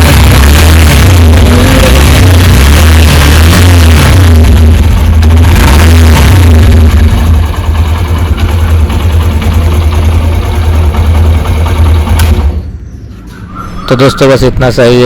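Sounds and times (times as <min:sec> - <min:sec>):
motorcycle engine idling: 0:04.0 - 0:05.8, 0:06.4 - 0:12.9.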